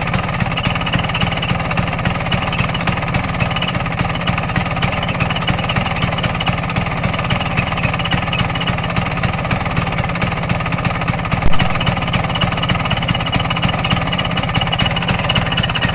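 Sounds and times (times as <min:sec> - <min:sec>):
scooter engine idling: 0:00.0 - 0:15.9
loud knock: 0:11.4 - 0:12.1.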